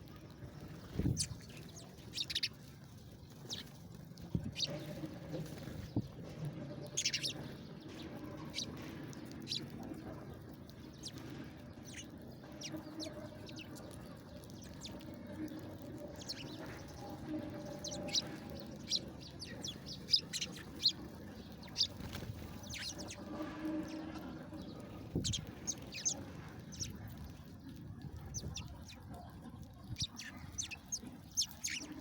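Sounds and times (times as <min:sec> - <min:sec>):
low steady hum: 0:00.0 - 0:32.0
small birds chirping: 0:00.0 - 0:32.0.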